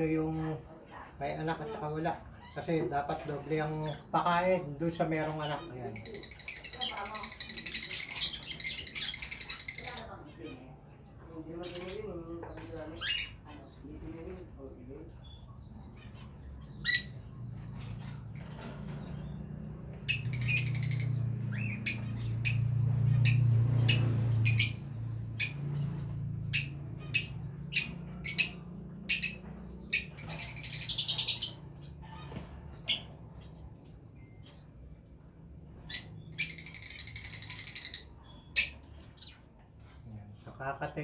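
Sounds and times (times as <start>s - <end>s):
birds chattering rapidly: 0.0s - 41.0s
birds squawking: 1.4s - 41.0s.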